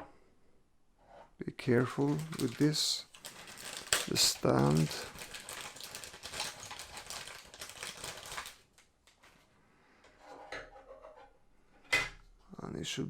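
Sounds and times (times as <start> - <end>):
plastic packaging crinkling: 1.6 - 9.4.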